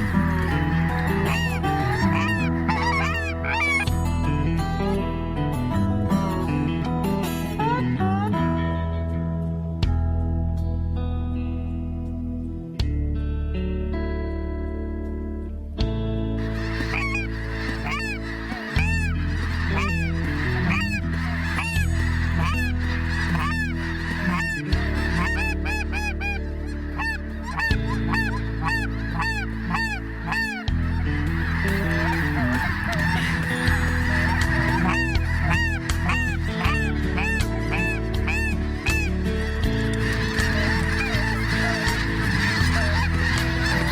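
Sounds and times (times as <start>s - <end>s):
geese honking: 0.0s - 3.9s, 16.4s - 43.9s
background music: 0.0s - 43.9s.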